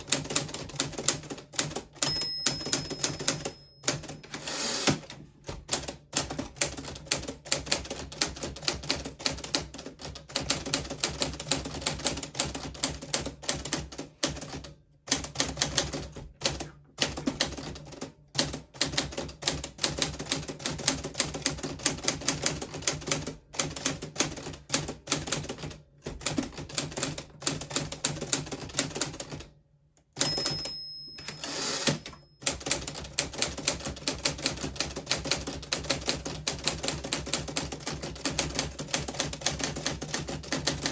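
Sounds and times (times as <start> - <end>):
manual typewriter typing: 0.0 - 40.9
typewriter bell ring: 1.9 - 5.0, 30.2 - 32.9.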